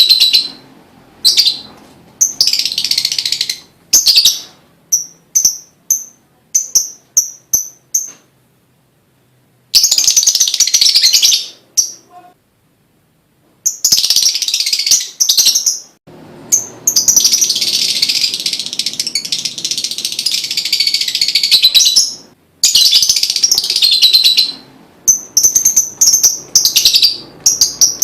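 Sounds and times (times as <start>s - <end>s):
lovebird shrill chirps: 0.0s - 0.6s, 1.2s - 8.2s, 9.7s - 12.3s, 13.6s - 28.0s
lovebird chattering trills: 16.5s - 28.0s.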